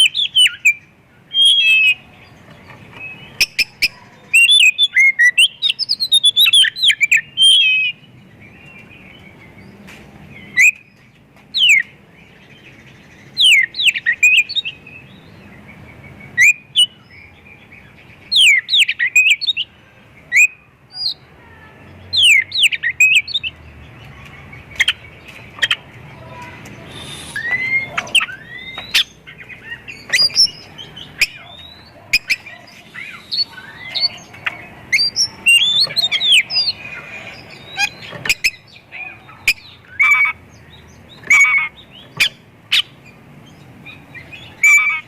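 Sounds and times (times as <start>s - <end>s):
bird singing whistles and chirps: 0.0s - 2.1s, 3.0s - 9.6s, 13.0s - 17.3s, 26.9s - 38.8s.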